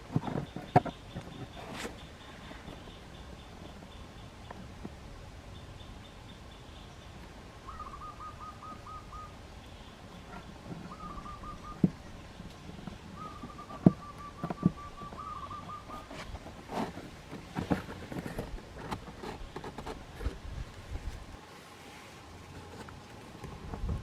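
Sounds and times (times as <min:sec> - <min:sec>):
faint high-pitched bird notes: 0:05.5 - 0:16.2
bird calling rapid repeated notes: 0:13.2 - 0:16.1.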